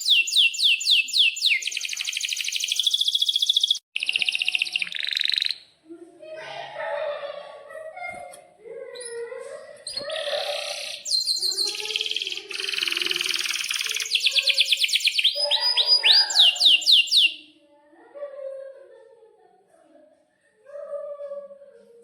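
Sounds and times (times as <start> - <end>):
canary singing: 0.0 - 5.8, 9.0 - 17.6.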